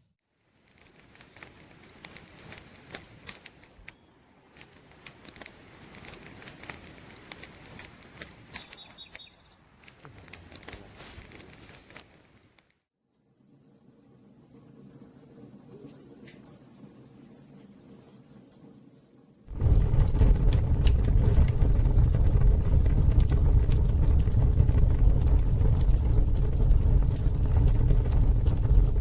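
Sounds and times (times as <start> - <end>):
campfire crackling: 0.4 - 12.7, 19.5 - 29.0
faint high chirps: 7.6 - 9.6.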